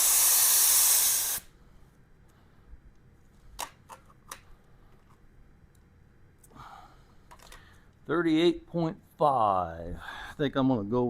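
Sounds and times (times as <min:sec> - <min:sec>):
air hissing out of tire valve: 0:00.0 - 0:01.5.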